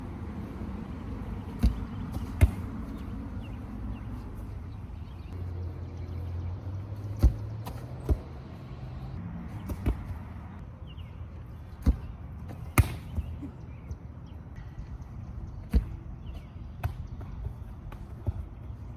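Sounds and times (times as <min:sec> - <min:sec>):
football kicked thuds: 0:01.5 - 0:03.1, 0:07.1 - 0:08.3, 0:09.6 - 0:10.2, 0:11.7 - 0:13.3.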